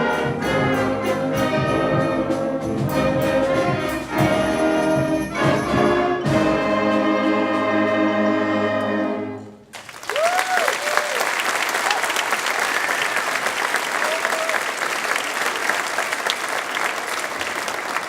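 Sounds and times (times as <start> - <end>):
drum strokes: 0.0 - 8.1
concert band playing: 0.0 - 9.4.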